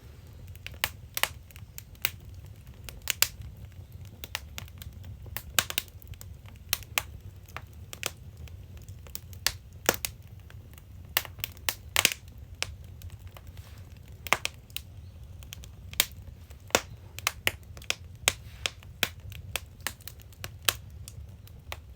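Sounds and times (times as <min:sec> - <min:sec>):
low steady rumble: 0:00.0 - 0:04.2
wood fire crackling and popping: 0:00.0 - 0:21.9.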